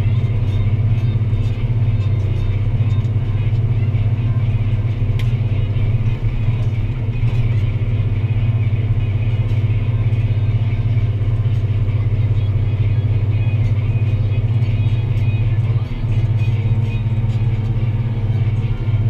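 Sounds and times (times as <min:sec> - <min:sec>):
tractor diesel engine droning: 0:00.0 - 0:19.0.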